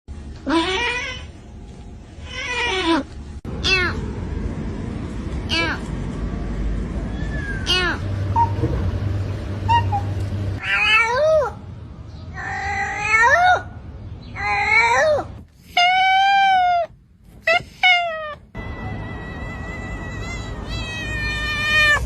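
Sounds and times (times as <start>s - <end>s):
cat meowing: 0.5s - 1.3s, 10.6s - 11.5s, 17.5s - 22.0s.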